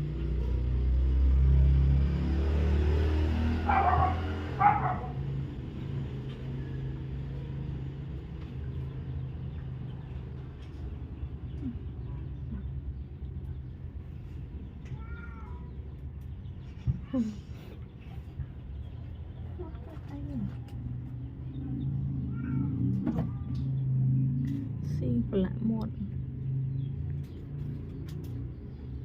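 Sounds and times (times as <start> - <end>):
dog barking: 3.6 - 5.2.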